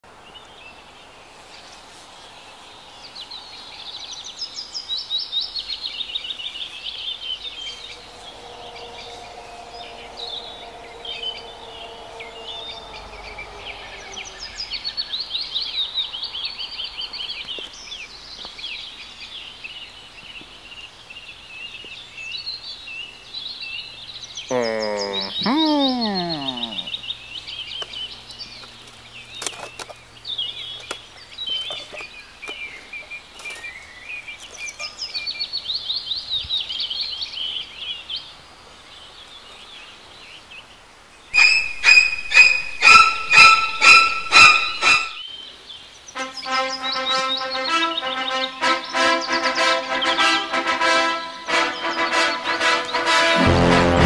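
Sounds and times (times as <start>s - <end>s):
small birds chirping and singing: 0.0s - 53.3s
loud drawn-out falling sound: 7.5s - 15.3s, 53.4s - 54.0s.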